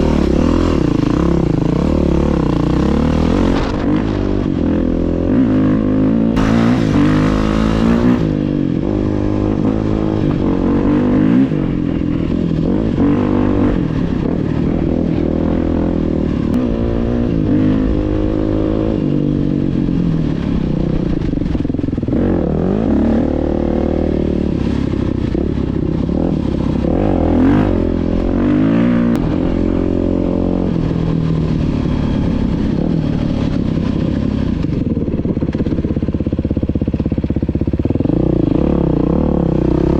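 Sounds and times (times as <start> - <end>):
dirt bike engine revving: 0.0 - 21.4, 22.0 - 31.0.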